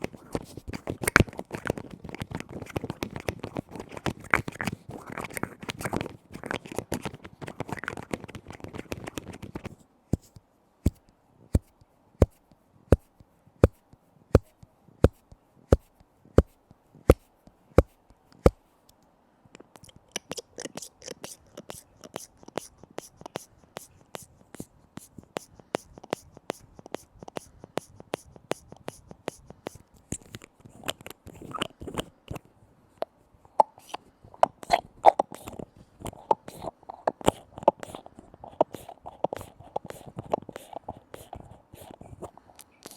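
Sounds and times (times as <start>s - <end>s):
lid tapping and scratching: 0.0s - 9.7s, 20.3s - 24.2s, 25.3s - 32.4s, 33.6s - 42.9s.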